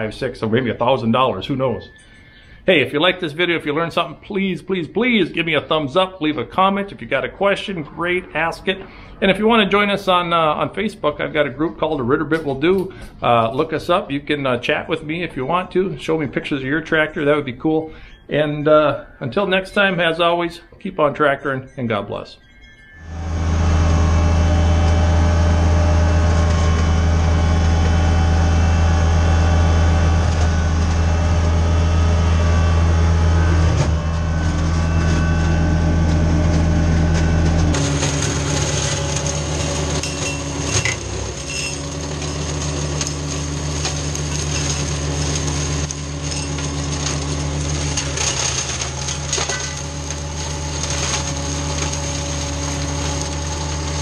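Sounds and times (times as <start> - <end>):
tractor engine running: 23.1 - 54.0.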